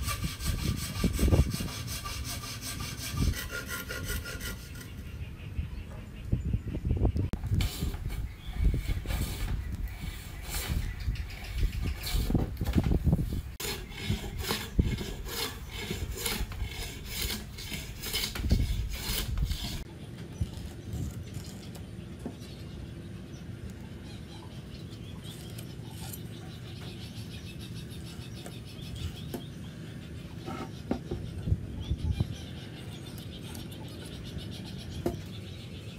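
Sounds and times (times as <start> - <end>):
hand tool rasping wood: 0.0 - 5.0, 7.5 - 12.7, 13.6 - 19.9.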